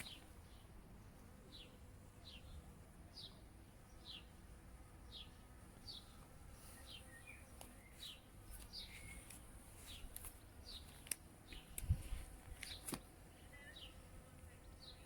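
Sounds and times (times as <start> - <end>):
bird chirping: 5.0 - 11.9, 12.6 - 15.0.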